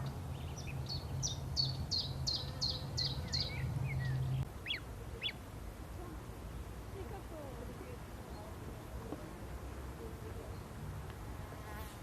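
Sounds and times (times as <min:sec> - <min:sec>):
songbird calling: 0:00.0 - 0:05.5.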